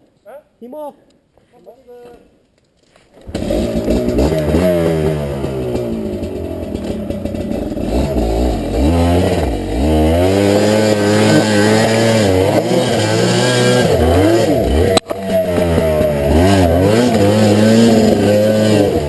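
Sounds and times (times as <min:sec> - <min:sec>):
dirt bike engine revving: 0:03.2 - 0:19.0.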